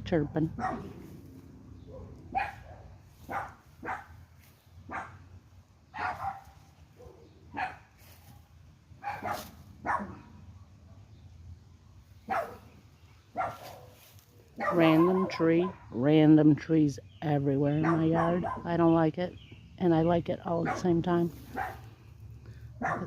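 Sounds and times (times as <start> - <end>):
dog barking: 0.6 - 1.0, 1.8 - 4.2, 4.9 - 5.2, 6.0 - 7.9, 9.0 - 10.4, 12.3 - 12.7, 13.3 - 14.0, 14.6 - 15.8, 17.8 - 18.7, 20.6 - 21.8, 22.8 - 23.0.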